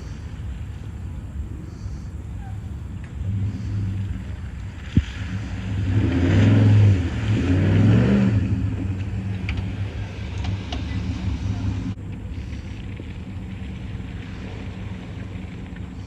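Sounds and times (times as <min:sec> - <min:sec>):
loud car exhaust revving: 0:01.6 - 0:12.8.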